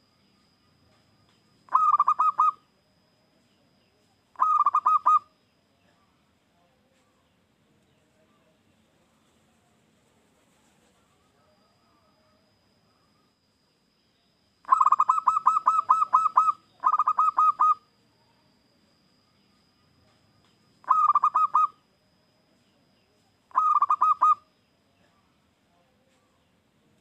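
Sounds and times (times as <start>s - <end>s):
dove cooing: 1.7s - 2.6s, 4.4s - 5.3s, 14.6s - 17.9s, 20.8s - 21.8s, 23.5s - 24.5s.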